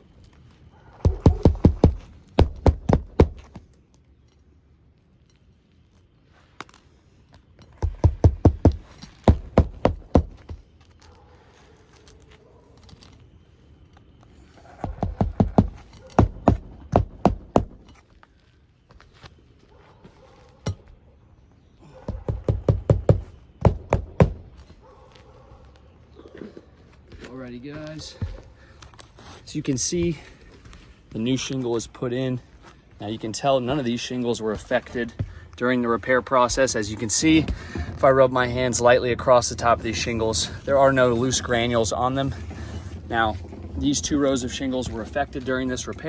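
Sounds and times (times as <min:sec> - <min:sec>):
hammer driving roofing nails: 0:01.0 - 0:03.7, 0:07.7 - 0:10.7, 0:14.5 - 0:18.0, 0:22.0 - 0:24.7.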